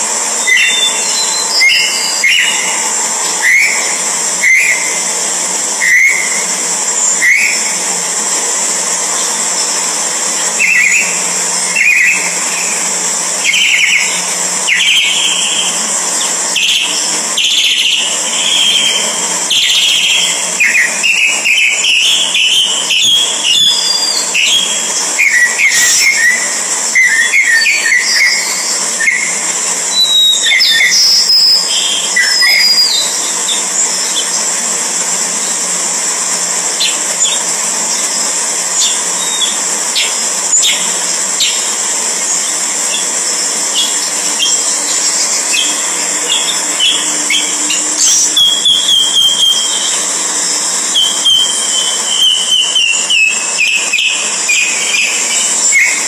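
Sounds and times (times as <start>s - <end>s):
steady high hiss: 0.0s - 56.0s
birds chirping: 10.5s - 34.6s, 36.8s - 56.0s.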